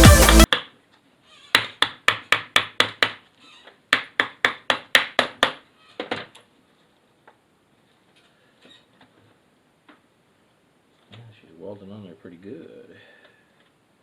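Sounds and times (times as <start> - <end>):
background music: 0.0 - 0.5.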